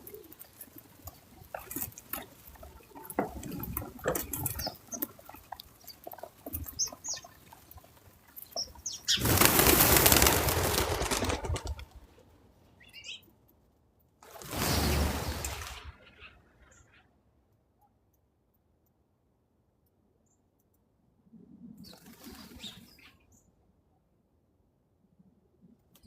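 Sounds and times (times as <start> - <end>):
birds' wings flapping: 0.0 - 12.2, 14.2 - 16.4
small clicks and rustles: 0.0 - 12.4.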